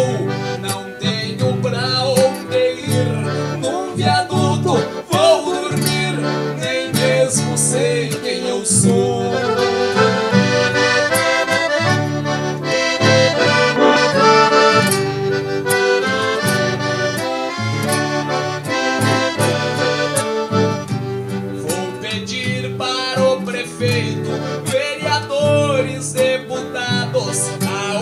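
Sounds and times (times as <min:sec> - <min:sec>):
accordion melody: 0:00.0 - 0:28.0
rhythmic bass accompaniment: 0:08.9 - 0:21.6.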